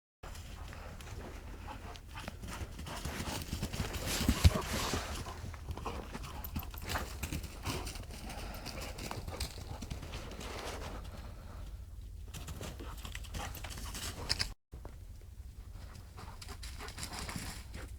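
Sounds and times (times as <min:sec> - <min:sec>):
dogs' paws thudding and scuffing: 0:00.2 - 0:11.2.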